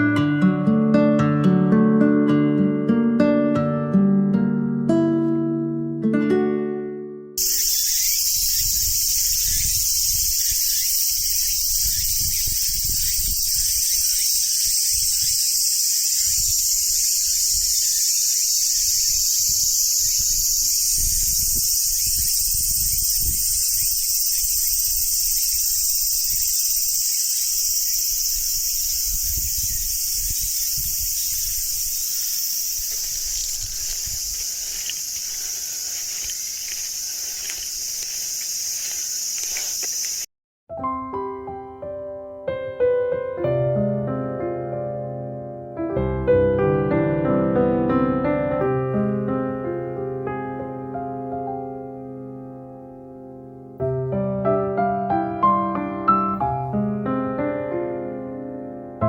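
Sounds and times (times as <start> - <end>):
insects shrilling: 7.4 - 40.3.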